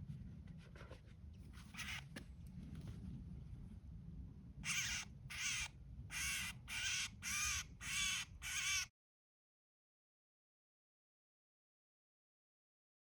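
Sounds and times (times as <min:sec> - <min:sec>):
small bird distress calls: 0:01.7 - 0:02.1, 0:04.6 - 0:08.9.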